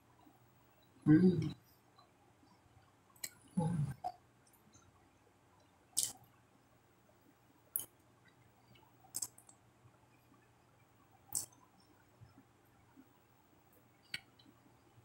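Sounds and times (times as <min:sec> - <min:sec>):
wet mouth clicks and lip smacks: 0:06.0 - 0:06.2, 0:09.1 - 0:09.6, 0:11.3 - 0:11.6.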